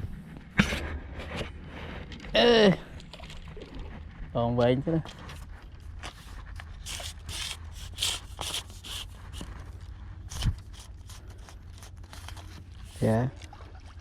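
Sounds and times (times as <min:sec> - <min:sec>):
scraping and rustling strokes: 0:05.0 - 0:13.5.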